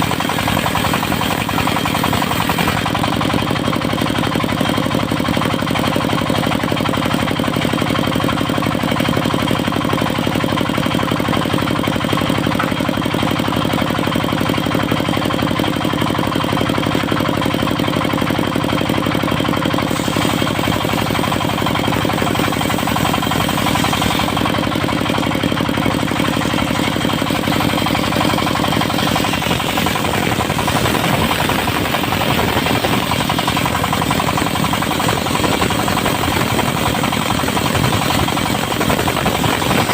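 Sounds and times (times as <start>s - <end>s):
diesel engine knocking: 0.0s - 39.9s
hiss: 19.9s - 24.4s, 28.8s - 39.9s.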